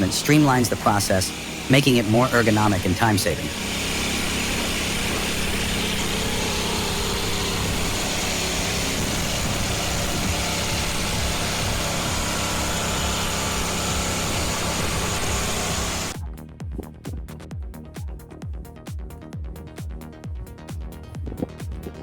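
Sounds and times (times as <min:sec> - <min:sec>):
log splitter engine running: 0:00.0 - 0:16.2.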